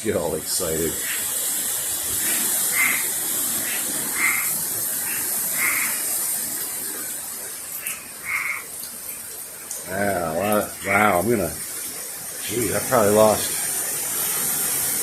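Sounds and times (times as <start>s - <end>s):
hiss of strong wind: 0.0s - 15.0s
frogs croaking: 0.8s - 14.6s.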